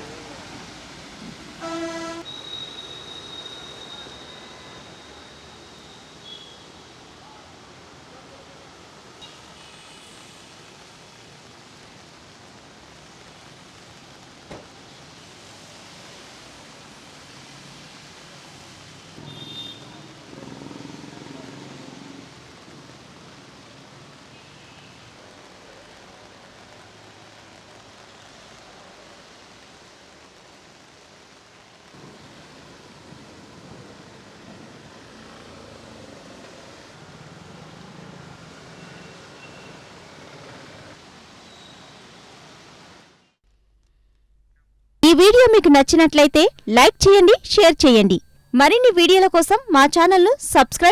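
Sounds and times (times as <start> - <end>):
heavy rain hiss: 0.0 - 2.2, 8.7 - 19.2, 20.9 - 36.2
brief high tone: 45.0 - 50.9.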